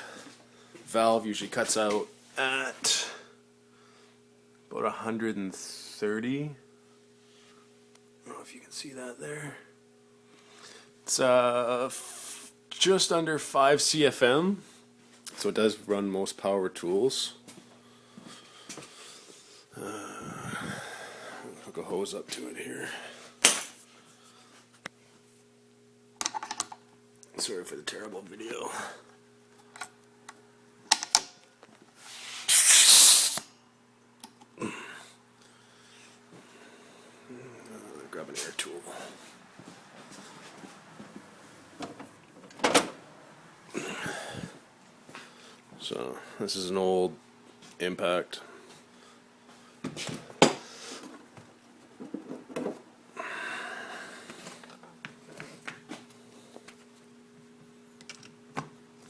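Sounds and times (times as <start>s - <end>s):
compressed air hissing: 32.3s - 33.4s
air hose coupler clicks: 32.5s - 33.4s.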